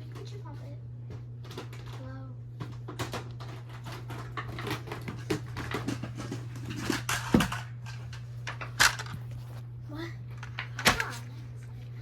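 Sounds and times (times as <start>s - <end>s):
steady low hum: 0.0s - 12.0s
small toys rustling and clicking: 1.4s - 9.5s.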